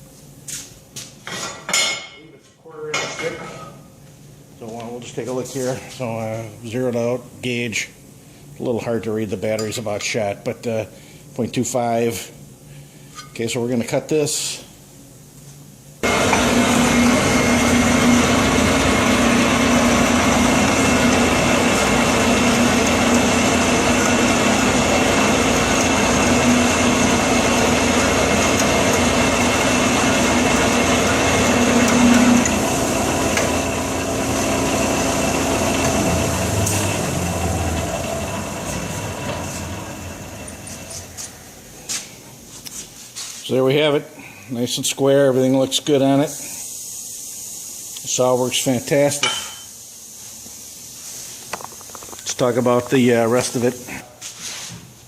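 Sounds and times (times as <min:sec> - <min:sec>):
band saw cutting steel: 0:16.0 - 0:41.1.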